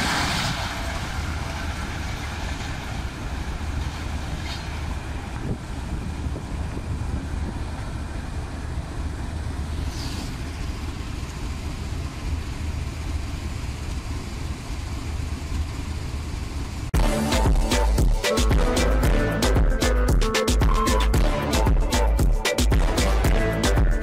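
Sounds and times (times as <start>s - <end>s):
wind noise: 0.0s - 9.0s
passenger train rumbling past: 0.0s - 20.0s
music: 17.0s - 24.0s.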